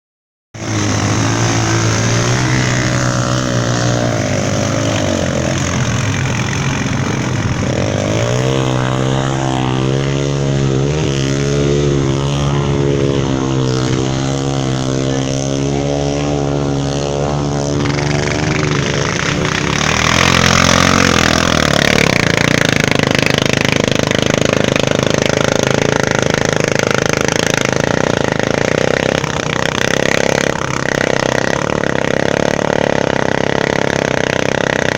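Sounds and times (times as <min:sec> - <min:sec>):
dirt bike engine running: 0:00.6 - 0:34.9.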